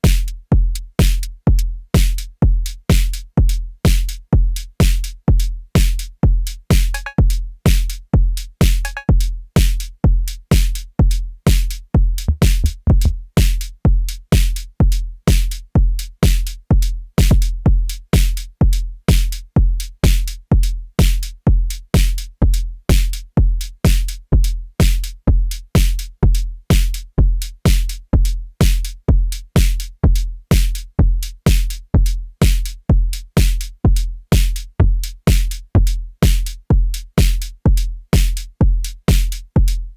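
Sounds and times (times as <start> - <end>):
deep kick drum: 0.0 - 39.9
bright hi-hat hits: 6.7 - 8.0, 8.6 - 9.0.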